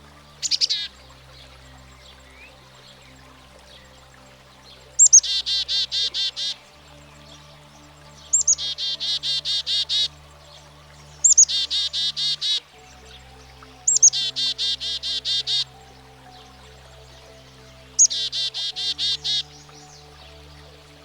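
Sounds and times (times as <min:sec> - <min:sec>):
soft background music: 0:00.0 - 0:21.0
chickadee calling: 0:05.0 - 0:06.7, 0:08.2 - 0:10.1, 0:11.2 - 0:12.7, 0:13.8 - 0:21.0.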